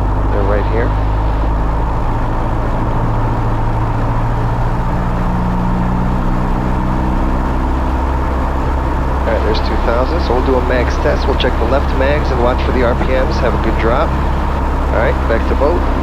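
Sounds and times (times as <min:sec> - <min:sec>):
aircraft engine and propeller running: 0:00.0 - 0:16.0.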